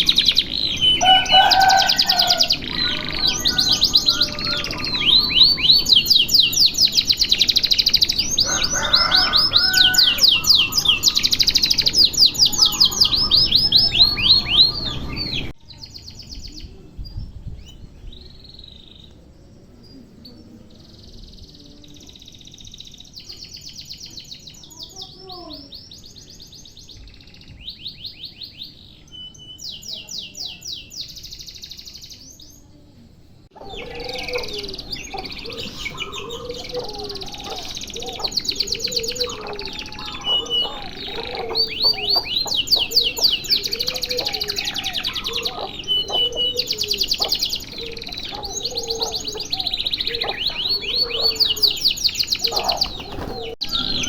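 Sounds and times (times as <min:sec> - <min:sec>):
canary singing fast high trills: 0:00.0 - 0:16.8, 0:33.5 - 0:54.0
low repeated chirp: 0:33.6 - 0:54.0.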